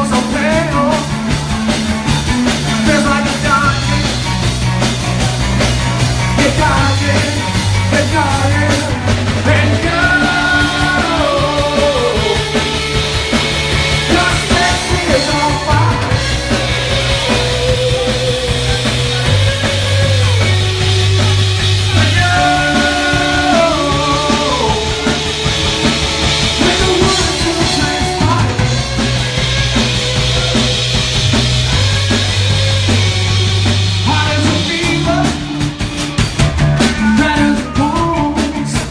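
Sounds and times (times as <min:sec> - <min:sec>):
bass guitar notes: 0:00.0 - 0:38.9
drums: 0:00.0 - 0:38.9
person singing: 0:05.2 - 0:35.8, 0:36.8 - 0:38.9.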